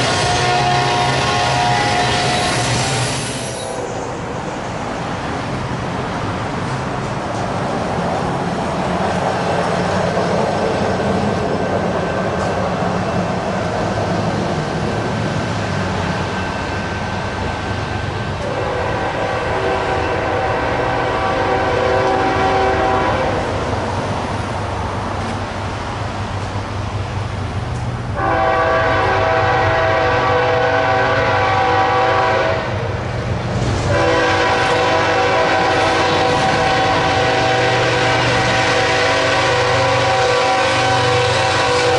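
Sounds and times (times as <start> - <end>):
train horn blasts: 0.0 - 3.0, 18.4 - 23.5, 28.2 - 32.8, 33.9 - 41.9
moving train drone: 0.0 - 41.9.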